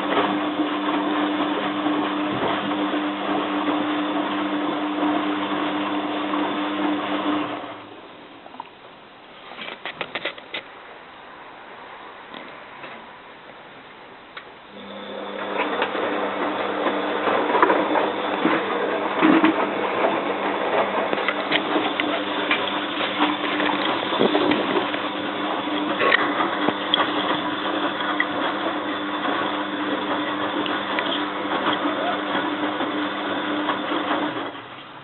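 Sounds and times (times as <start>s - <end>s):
washing machine motor hum: 0.0s - 8.4s, 14.6s - 35.0s
rattling clicking wash sound: 16.8s - 34.6s.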